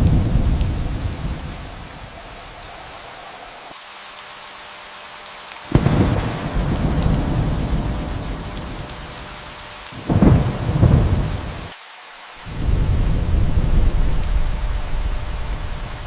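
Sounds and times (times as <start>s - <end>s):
thunder rumbling: 0.0s - 3.7s, 5.7s - 11.7s, 12.4s - 16.0s
steady rain: 0.0s - 16.0s.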